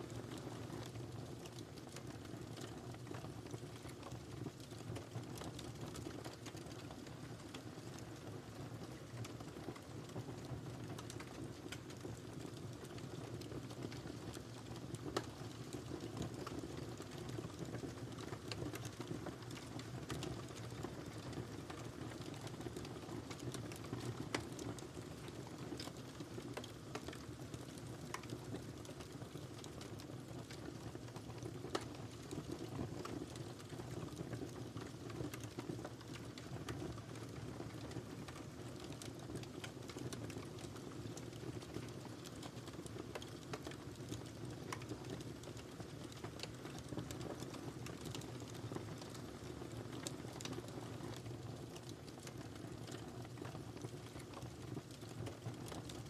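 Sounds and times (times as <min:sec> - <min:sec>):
fire crackling and popping: 0:00.0 - 0:56.0
flames rumbling: 0:08.6 - 0:56.0.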